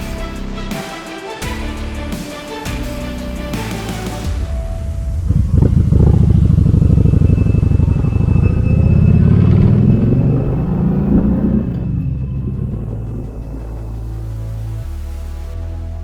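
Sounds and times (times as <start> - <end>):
motorcycle engine accelerating: 4.8 - 14.2.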